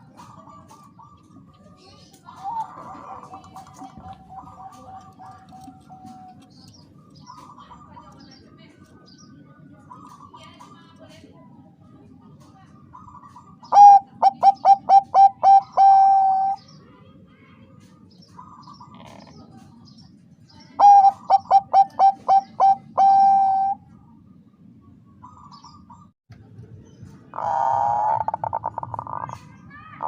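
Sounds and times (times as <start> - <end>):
dove cooing: 2.3 - 8.2, 12.9 - 16.6, 20.8 - 23.9, 27.3 - 29.4.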